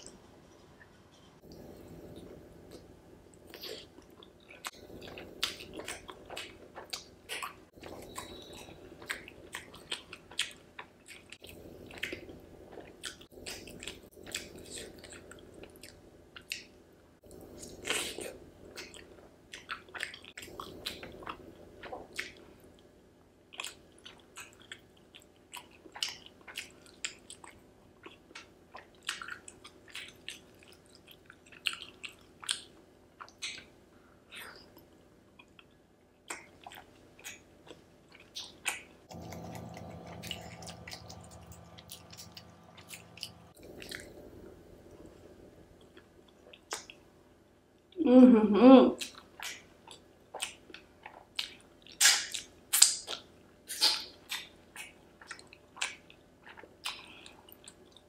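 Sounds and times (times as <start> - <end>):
wet chewing: 2.2 - 16.7, 23.5 - 47.1.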